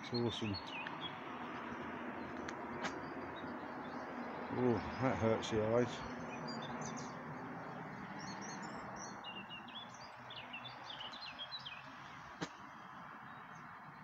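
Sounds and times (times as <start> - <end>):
small songbirds chirping: 0.0 - 14.0.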